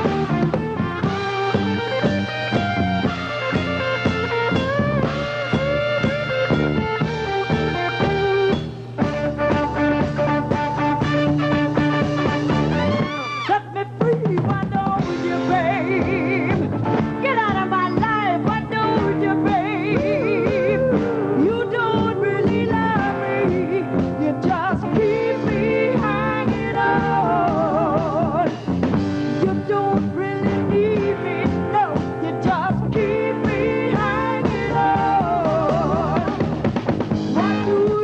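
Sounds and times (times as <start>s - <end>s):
live rock and roll band: 0.0s - 38.0s
lead vocal with wide vibrato: 18.9s - 28.6s, 29.4s - 36.6s.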